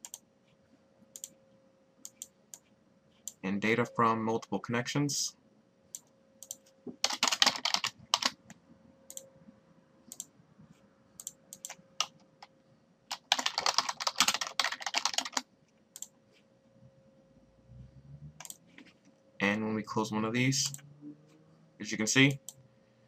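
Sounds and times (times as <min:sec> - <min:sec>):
typing on computer keyboard: 0:06.0 - 0:08.4, 0:11.2 - 0:12.5, 0:13.1 - 0:16.1, 0:18.4 - 0:18.6.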